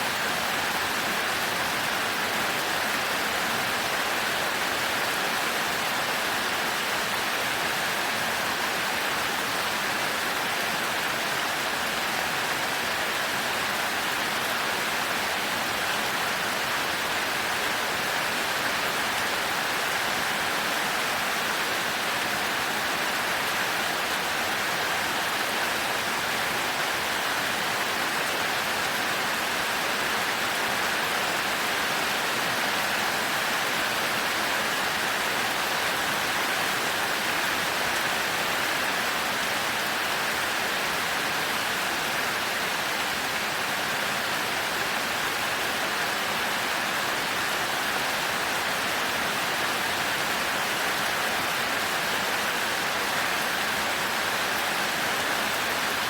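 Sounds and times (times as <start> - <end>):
heavy rain falling: 0.1 - 56.0.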